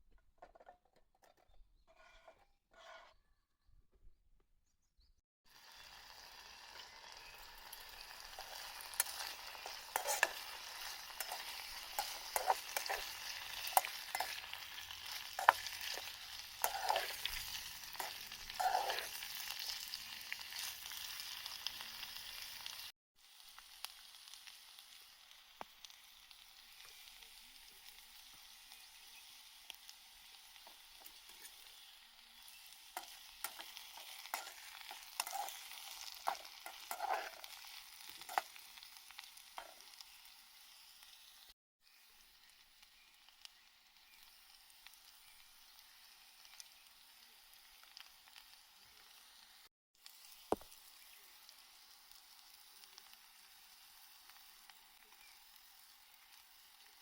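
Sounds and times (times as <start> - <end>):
food sizzling in a frying pan: 5.5 - 57.0
utensil clicking and scraping: 8.4 - 19.2, 33.0 - 37.5.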